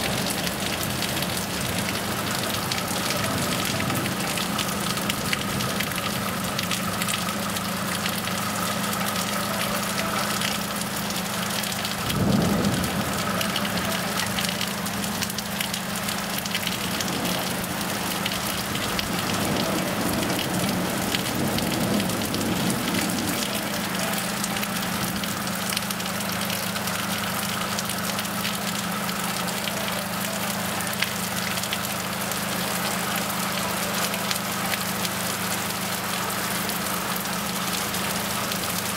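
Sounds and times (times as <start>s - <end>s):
heavy rain pouring: 0.0s - 38.9s
thunder rumbling: 11.6s - 15.3s, 16.3s - 25.5s.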